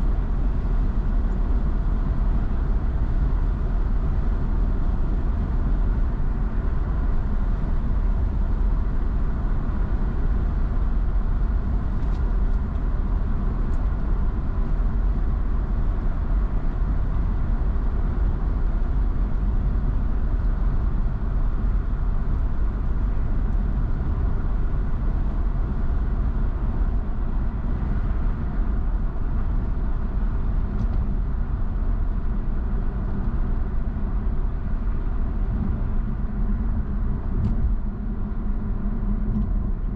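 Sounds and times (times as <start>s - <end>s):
car tyres and engine rumble: 0.0s - 39.9s.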